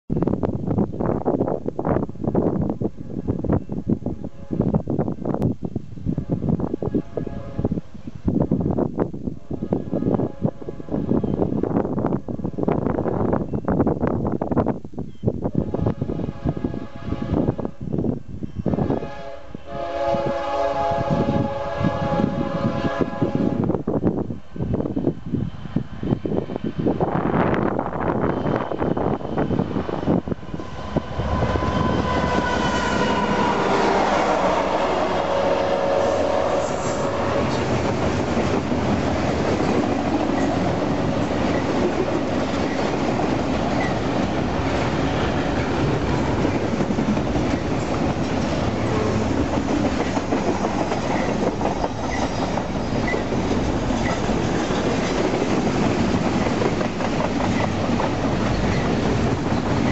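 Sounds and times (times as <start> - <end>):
freight train rumble and clickety-clack: 0.1 - 59.9
locomotive whine: 15.6 - 59.9.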